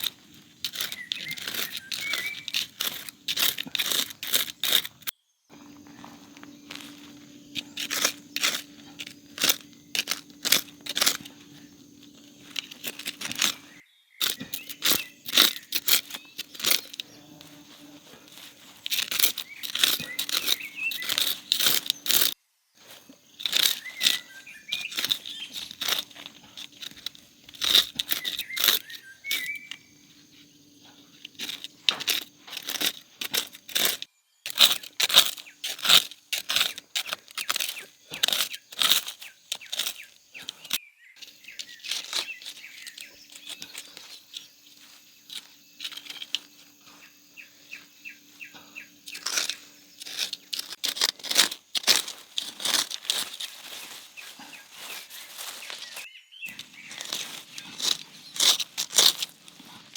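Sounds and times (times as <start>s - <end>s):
dry plant material rustling: 0.0s - 59.9s.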